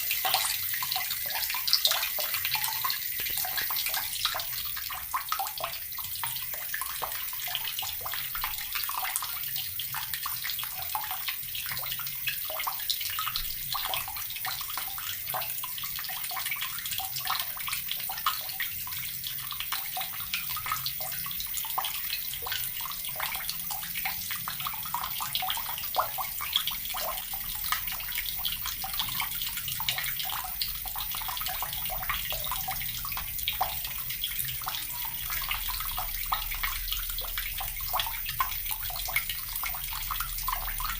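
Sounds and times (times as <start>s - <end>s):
tap water splashing: 0.0s - 7.2s.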